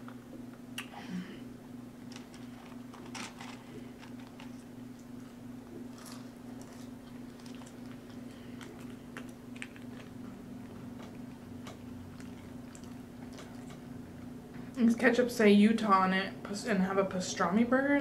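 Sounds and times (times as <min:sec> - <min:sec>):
steady low hum: 0:00.0 - 0:18.0
paper packet crinkling: 0:02.1 - 0:05.3, 0:05.9 - 0:10.2
chewing with mouth closed: 0:05.9 - 0:13.9.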